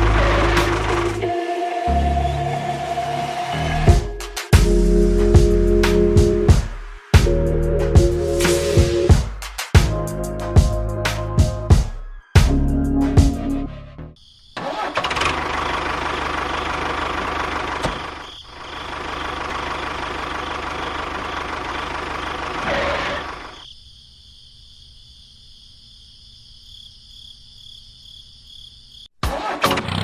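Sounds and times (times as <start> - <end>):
small engine running: 14.8 - 23.6.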